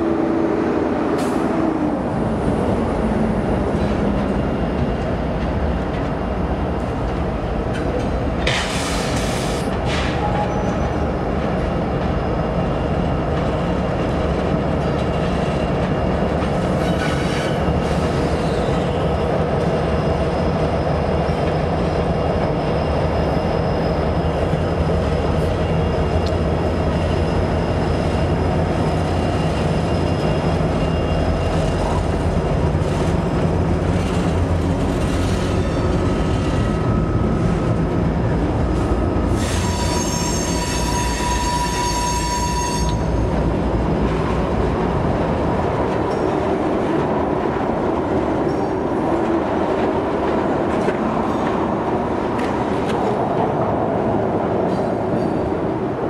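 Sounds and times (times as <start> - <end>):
train wheels rumbling on rail: 0.0 - 56.0
high-pitched wheel squeal: 39.4 - 43.3.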